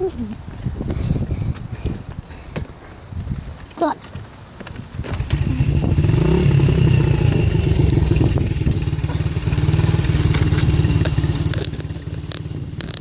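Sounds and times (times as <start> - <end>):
dirt bike engine revving: 5.1 - 13.0.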